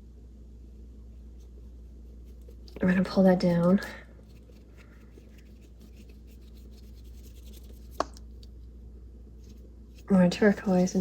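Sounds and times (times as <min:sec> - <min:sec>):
paintbrush strokes on paper: 0:00.6 - 0:08.2.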